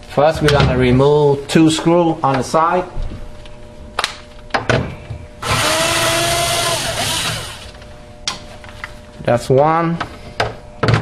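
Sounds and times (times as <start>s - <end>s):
drill motor whining: 5.4s - 7.8s.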